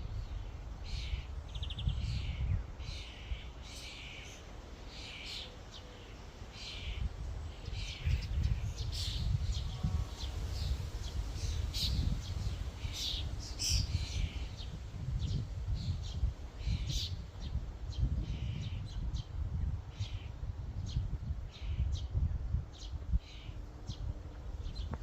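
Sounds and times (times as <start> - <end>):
starlings chirping: 0.2 - 19.3.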